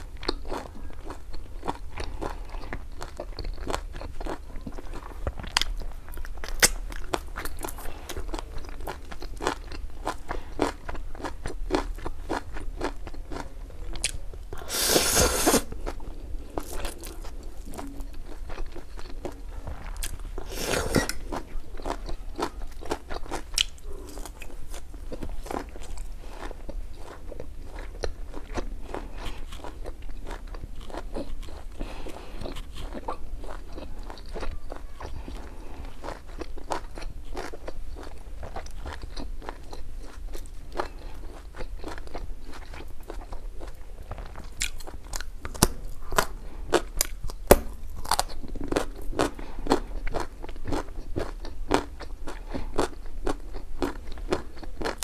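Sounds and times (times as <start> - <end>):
crunching and chewing greens: 0.0 - 55.0
noodle slurp: 14.6 - 15.7.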